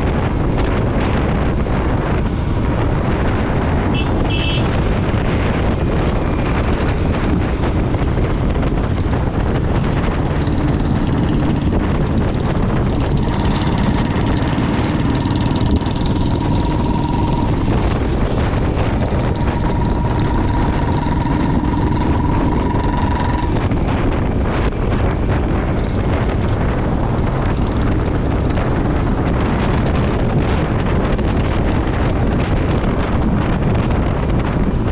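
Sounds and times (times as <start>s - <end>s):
motorcycle engine running: 0.0s - 34.9s
wind rush on microphone: 0.0s - 34.9s
steady high whine: 8.8s - 24.5s.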